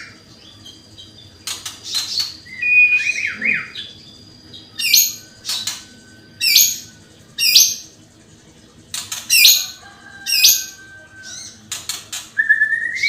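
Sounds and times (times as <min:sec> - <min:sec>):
bird singing: 0:00.0 - 0:13.0
harsh buzzy bird notes: 0:00.0 - 0:13.0
rising whistled bird notes: 0:02.4 - 0:07.9, 0:12.4 - 0:13.0.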